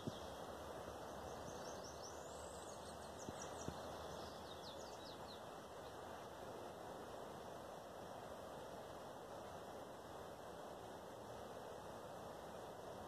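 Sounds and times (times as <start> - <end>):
songbird calling: 0.0 - 6.0
steady background hiss: 0.0 - 13.0.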